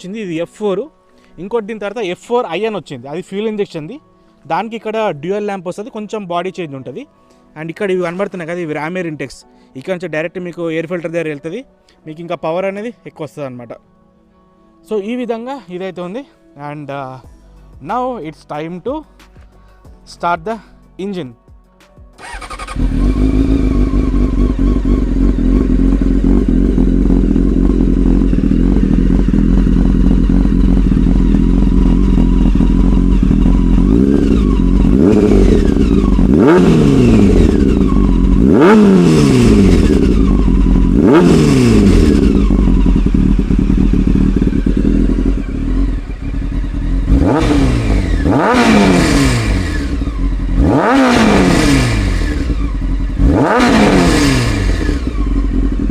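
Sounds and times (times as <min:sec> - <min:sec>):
motorcycle engine idling: 0:22.2 - 0:55.9
motorcycle engine revving: 0:22.2 - 0:55.9.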